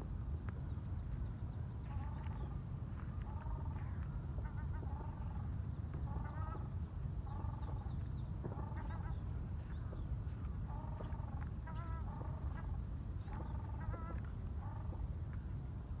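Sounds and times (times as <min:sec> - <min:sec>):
waterfowl honking: 0:03.2 - 0:15.0.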